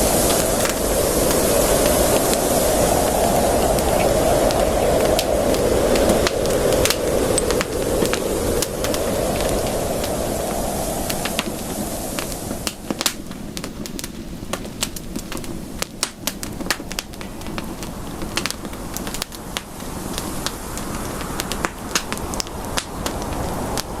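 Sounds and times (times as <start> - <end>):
burning wood popping: 0.0 - 24.0
rush of flames: 0.0 - 24.0.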